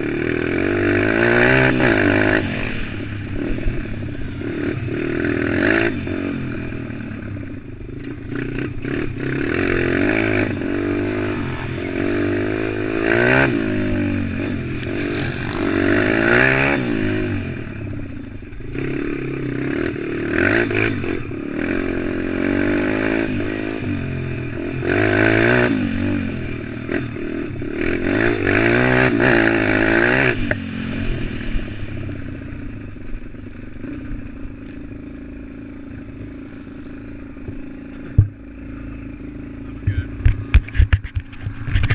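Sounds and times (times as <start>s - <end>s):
motorbike engine revving: 0.0s - 41.9s.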